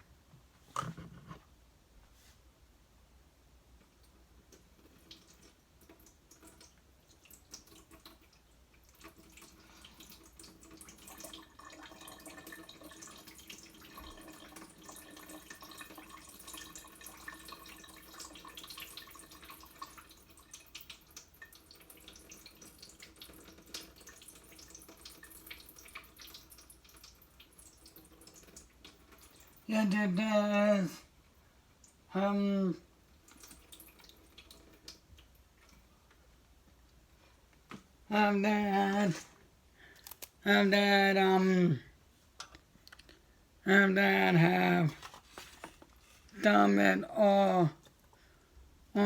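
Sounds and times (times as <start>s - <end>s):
drips and splashes: 4.6s - 29.7s, 33.2s - 35.9s
liquid running into a sink: 4.6s - 29.7s, 33.2s - 35.8s.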